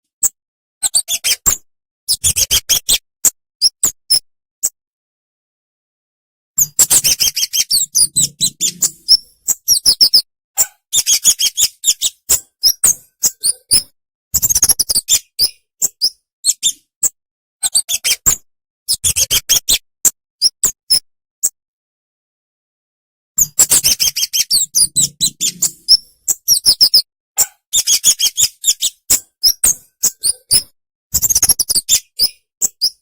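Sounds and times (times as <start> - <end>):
birds chirping sharply: 6.6 - 10.2, 10.9 - 13.8, 23.4 - 27.0, 27.7 - 30.6.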